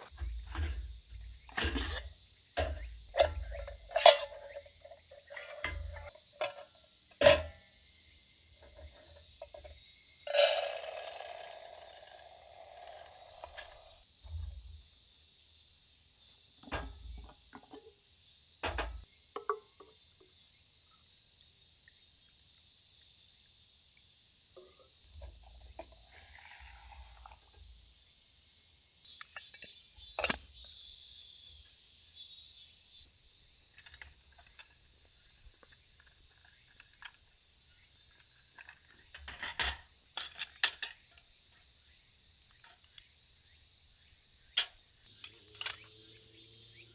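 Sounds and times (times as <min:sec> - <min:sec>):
metal cookware clinking: 0:00.0 - 0:07.6, 0:16.6 - 0:17.9, 0:18.6 - 0:19.6, 0:39.2 - 0:41.2, 0:44.6 - 0:46.0.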